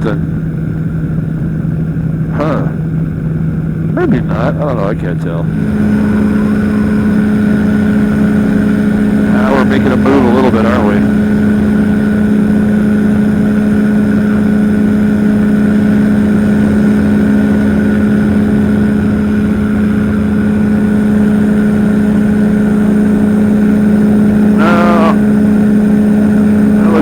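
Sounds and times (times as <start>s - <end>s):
engine and propeller drone: 0.0s - 27.0s
short voice sound: 2.4s - 2.8s, 24.6s - 25.2s.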